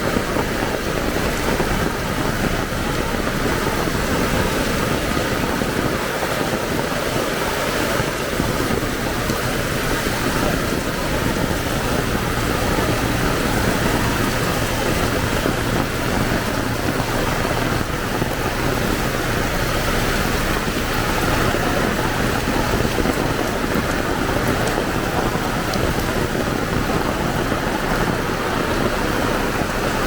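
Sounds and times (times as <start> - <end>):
heavy rain: 0.0 - 30.0.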